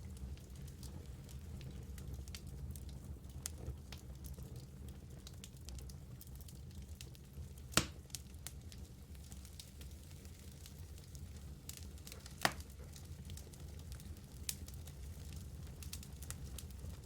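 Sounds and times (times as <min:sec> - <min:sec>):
fire rumbling and crackling: 0:00.0 - 0:17.0
sharp pop from fire: 0:07.7 - 0:08.0.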